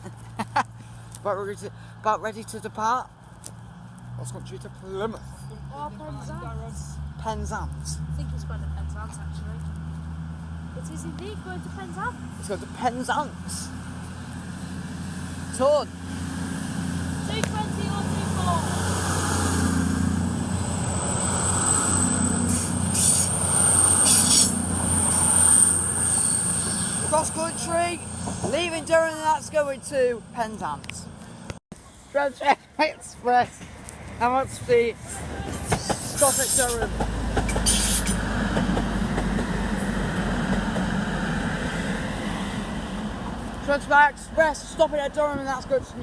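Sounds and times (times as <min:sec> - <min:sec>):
diesel train engines running: 0:07.5 - 0:31.6, 0:33.4 - 0:46.0
train rumbling slowly to a stop: 0:35.0 - 0:43.6
brief hiss: 0:37.5 - 0:38.2.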